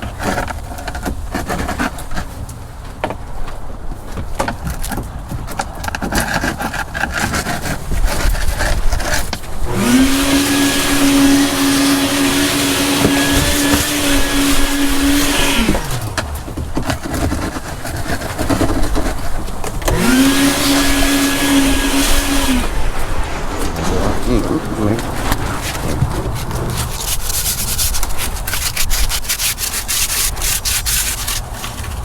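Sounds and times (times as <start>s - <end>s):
electric power sander running: 9.6s - 16.4s, 19.7s - 23.9s.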